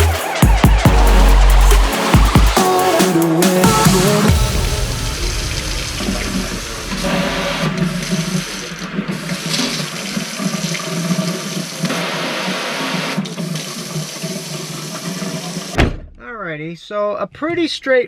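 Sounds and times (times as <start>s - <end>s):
water running into a sink: 7.3s - 15.8s.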